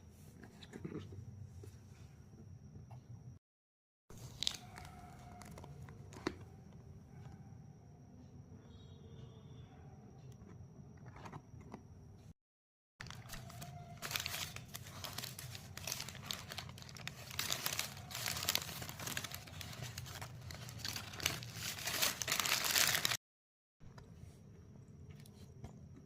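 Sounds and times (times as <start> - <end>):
food wrapper crinkling and tearing: 4.2 - 5.7, 13.0 - 23.2.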